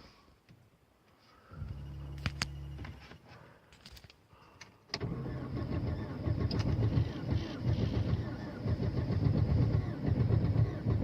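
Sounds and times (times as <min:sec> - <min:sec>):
electric hum: 0:01.5 - 0:03.0
car engine running roughly: 0:05.2 - 0:11.0.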